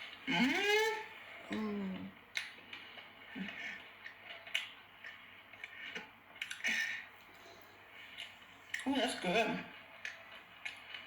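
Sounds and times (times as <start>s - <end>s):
wet chewing clicks and smacks: 2.3s - 7.3s, 8.0s - 8.9s, 9.9s - 11.0s.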